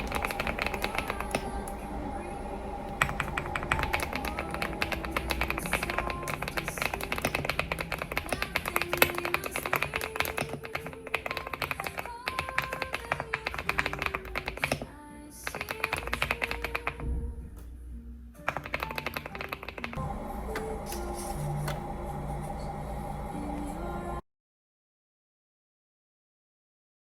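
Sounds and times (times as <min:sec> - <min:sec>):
typing on mechanical keyboard: 0:00.0 - 0:01.5, 0:03.0 - 0:17.0, 0:18.4 - 0:20.0.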